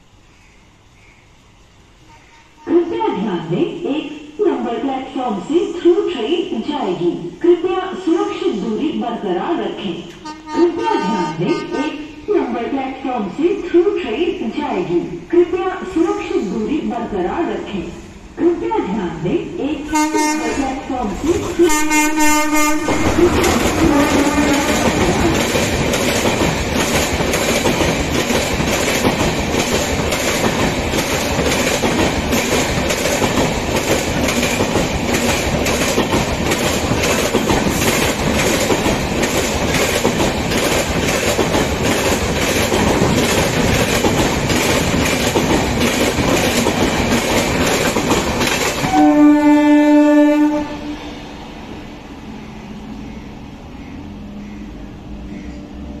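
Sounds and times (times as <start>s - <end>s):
train passing at speed: 0.0s - 56.0s
train horn blast: 10.2s - 12.2s, 19.9s - 20.8s, 21.6s - 25.4s, 48.9s - 51.0s
clickety-clack over rail joints: 22.6s - 50.6s.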